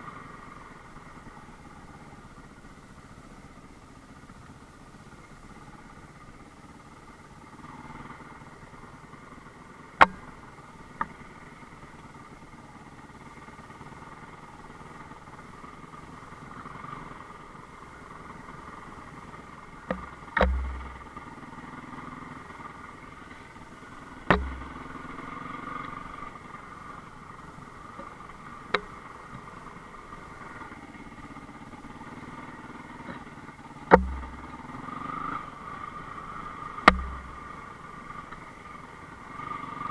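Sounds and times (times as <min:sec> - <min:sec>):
motorcycle engine running: 0:00.0 - 0:39.9
sharp knocks with low thump: 0:19.9 - 0:21.1, 0:24.3 - 0:24.9, 0:33.9 - 0:34.6, 0:36.9 - 0:37.4.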